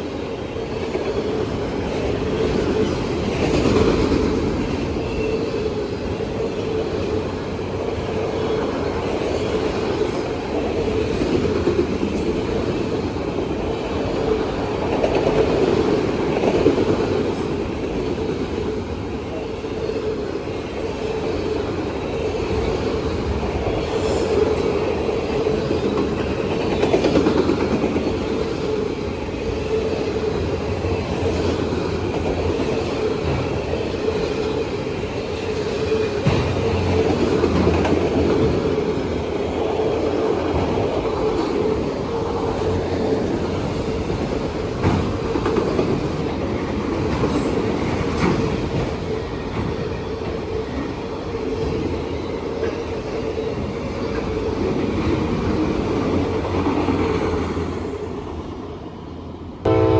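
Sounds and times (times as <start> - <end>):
freight train cars rolling past: 0.0 - 59.9.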